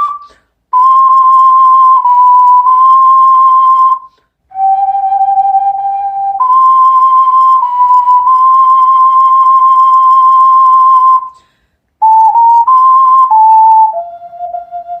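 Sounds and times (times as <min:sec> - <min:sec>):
ocarina playing slow melody: 0:00.0 - 0:11.3, 0:12.0 - 0:15.0.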